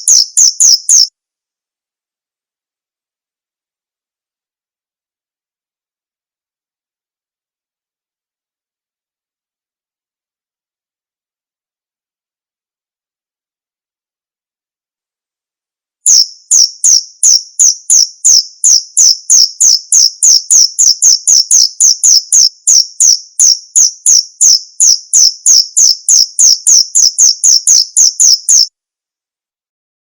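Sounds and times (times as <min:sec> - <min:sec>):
cricket chirping: 0:00.0 - 0:01.1, 0:16.1 - 0:28.7.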